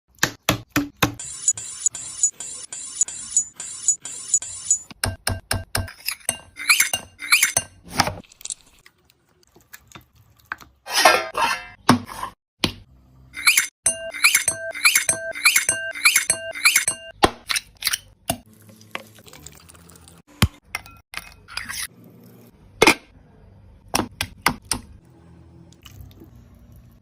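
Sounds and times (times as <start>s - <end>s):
high ringing: 13.4s - 17.1s
utensils striking dishes and pans: 13.4s - 17.2s.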